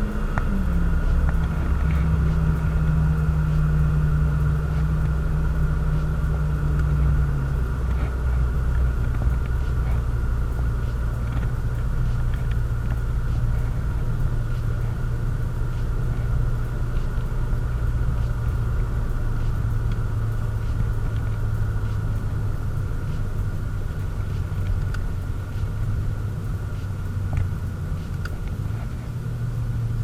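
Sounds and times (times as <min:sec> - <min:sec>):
car engine rumble: 0:00.0 - 0:30.0
road noise: 0:00.0 - 0:30.0.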